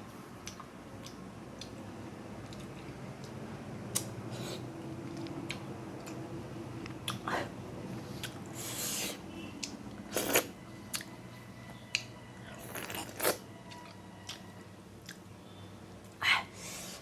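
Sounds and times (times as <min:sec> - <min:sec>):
person chewing with mouth clicks: 0:00.4 - 0:01.8, 0:02.4 - 0:04.1, 0:06.8 - 0:07.3, 0:08.2 - 0:08.5.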